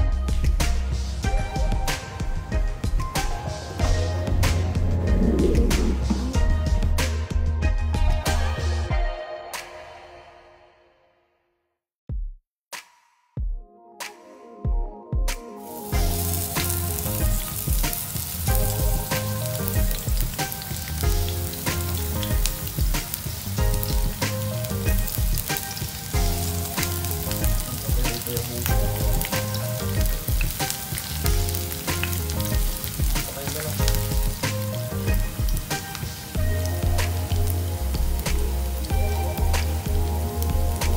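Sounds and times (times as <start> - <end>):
background music with bass beat: 0.0 - 9.2, 12.7 - 40.9
onions sizzling in hot oil: 15.7 - 40.9.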